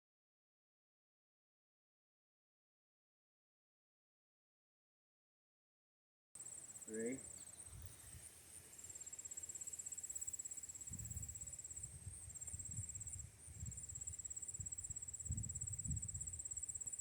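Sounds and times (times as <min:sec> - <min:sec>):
insects trilling: 0:06.4 - 0:17.0
low rumbles on microphone: 0:14.6 - 0:16.4.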